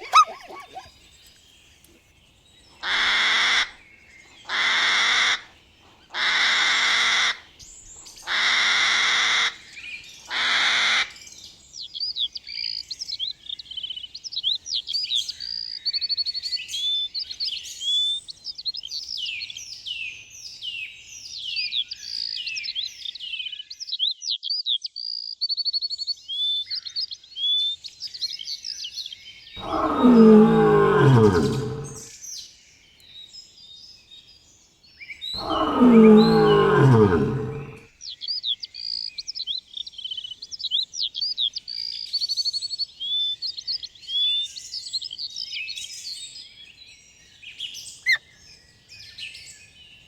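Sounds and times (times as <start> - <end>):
loud harsh calls: 0.0 - 0.9, 29.6 - 32.0, 35.4 - 37.8
small birds chirping and trilling: 0.0 - 2.9, 35.4 - 37.8.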